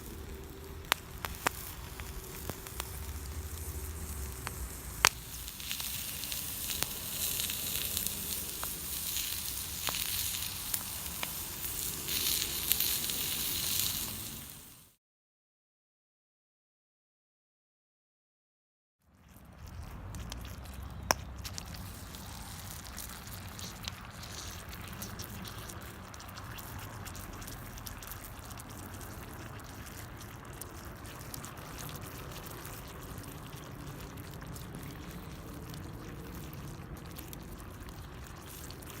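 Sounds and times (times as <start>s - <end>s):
wood fire crackling: 0.0s - 15.0s, 19.6s - 39.0s.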